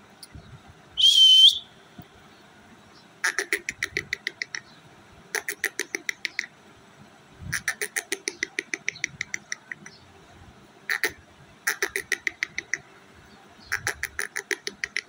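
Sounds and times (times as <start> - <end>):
parakeet calling sharp notes: 10.9 - 12.8.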